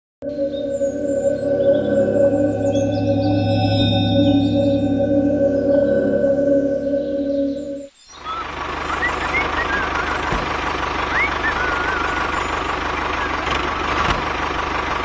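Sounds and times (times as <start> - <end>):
ringing tone: 0.2 - 7.9.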